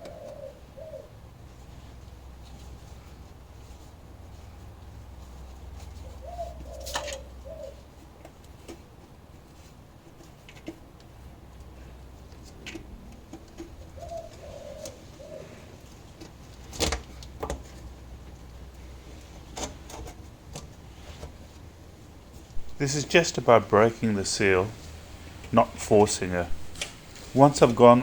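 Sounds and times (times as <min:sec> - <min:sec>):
dove cooing: 0:00.0 - 0:01.9, 0:05.8 - 0:08.2, 0:12.8 - 0:16.6.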